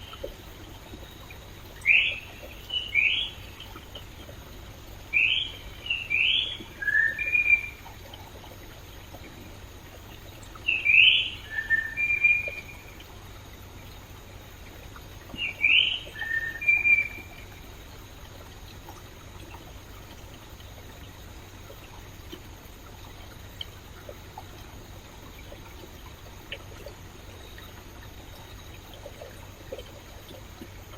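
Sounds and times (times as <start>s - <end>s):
songbird singing: 0.0s - 30.8s
stream running: 0.0s - 30.9s.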